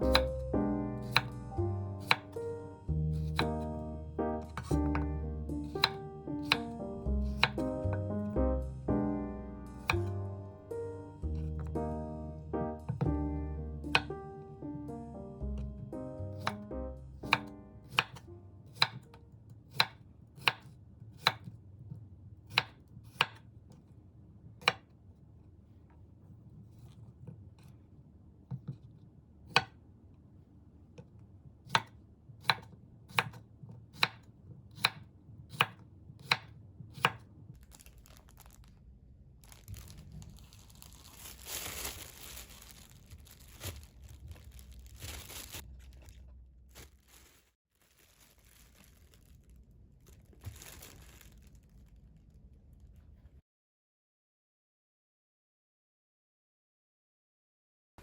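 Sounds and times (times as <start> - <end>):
knife chopping on cutting board: 0.0 - 0.4, 1.0 - 1.4, 2.0 - 2.4, 3.0 - 3.8, 4.5 - 8.4, 9.8 - 10.2, 13.9 - 14.2, 15.8 - 18.2, 18.8 - 19.1, 19.7 - 21.5, 22.5 - 23.4, 29.5 - 29.8, 31.6 - 37.2
plastic bag rustling: 37.6 - 53.4.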